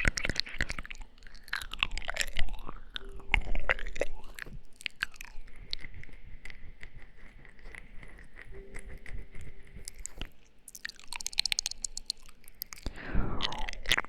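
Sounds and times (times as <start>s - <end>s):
wet mouth clicks and smacks: 0.0s - 14.0s.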